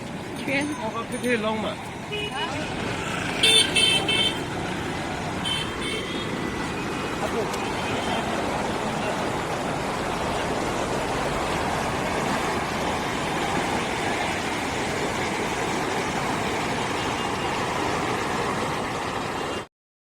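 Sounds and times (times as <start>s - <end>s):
car road and engine noise: 0.0s - 19.7s.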